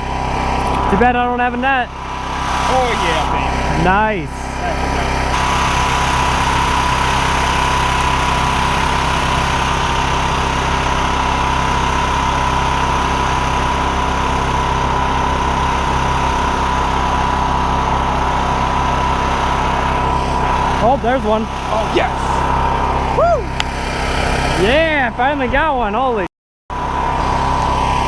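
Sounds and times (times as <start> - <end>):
thin steady whine: 0.0 - 23.7
small engine running: 0.0 - 28.0.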